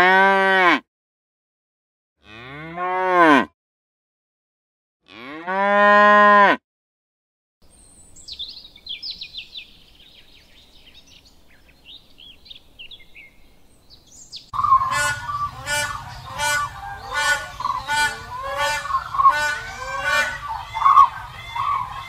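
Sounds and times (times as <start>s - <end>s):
calf mooing: 0.0s - 0.8s, 2.2s - 3.5s, 5.1s - 6.6s, 14.9s - 21.8s
soft high bird chirps: 7.6s - 18.0s
crane honking calls: 14.6s - 22.0s.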